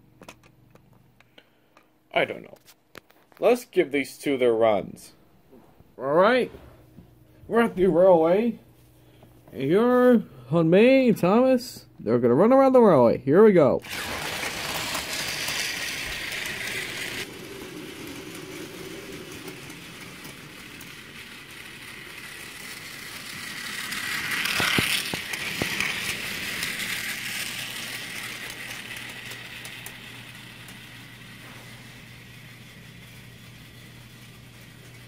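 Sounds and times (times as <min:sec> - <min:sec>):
toy train whirring: 0:13.8 - 0:35.0.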